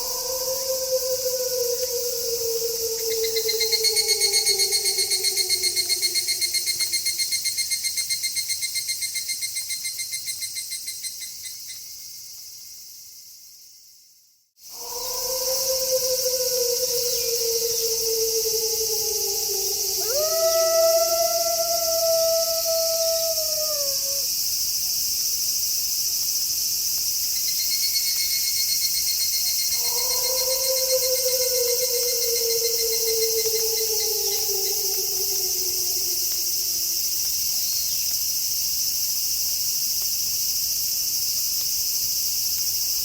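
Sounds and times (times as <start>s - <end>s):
wolf howl: 0.0s - 7.1s, 14.7s - 24.3s, 29.7s - 37.2s
high pulsing insect trill: 0.0s - 11.9s, 14.7s - 43.0s
crickets chirping: 0.0s - 43.0s.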